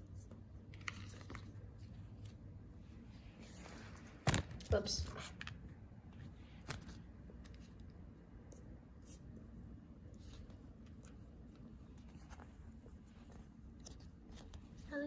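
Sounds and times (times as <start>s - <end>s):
low room hum: 0.0s - 15.0s
sticker sheets rustling: 10.1s - 15.0s.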